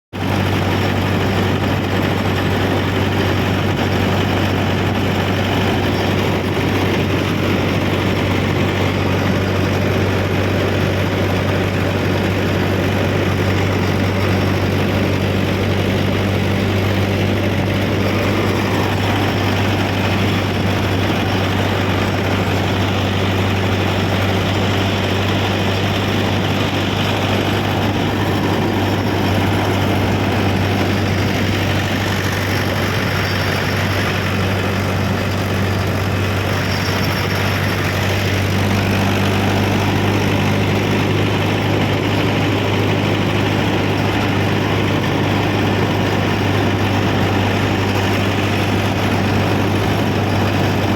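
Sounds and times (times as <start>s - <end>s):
tractor diesel engine running: 0.1s - 50.9s.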